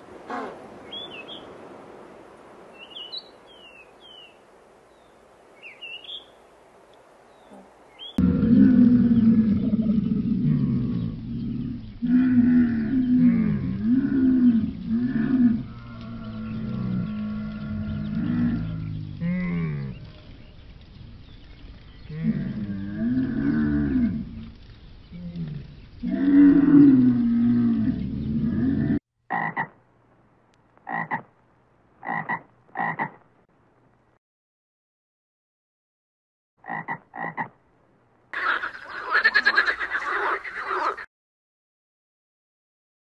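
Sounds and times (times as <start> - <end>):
frog croaking: 28.6 - 29.8, 30.8 - 31.4, 32.0 - 33.2, 36.6 - 37.6, 38.3 - 41.1.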